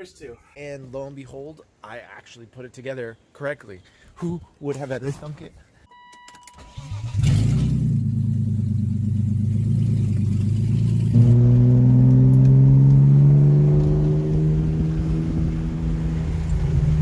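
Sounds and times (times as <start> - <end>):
car engine starting and running: 6.6 - 17.0.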